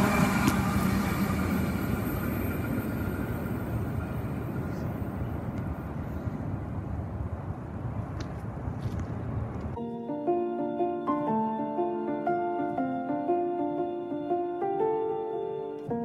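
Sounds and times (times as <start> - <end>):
train rumble: 0.0 - 9.8.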